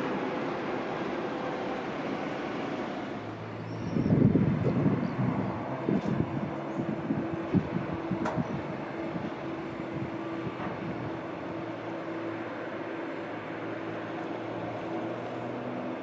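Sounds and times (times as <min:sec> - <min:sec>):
distant aircraft engines humming: 0:00.0 - 0:16.0
wind rumbling on microphone: 0:03.4 - 0:11.9.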